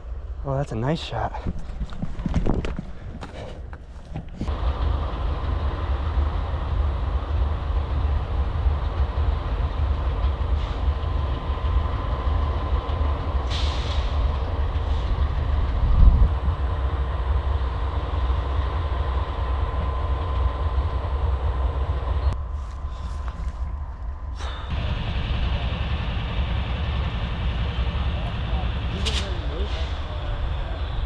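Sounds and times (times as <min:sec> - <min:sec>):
freight train rumbling: 0:04.4 - 0:31.0
train whine: 0:04.5 - 0:31.0
short hiss: 0:13.5 - 0:14.2, 0:29.0 - 0:30.0.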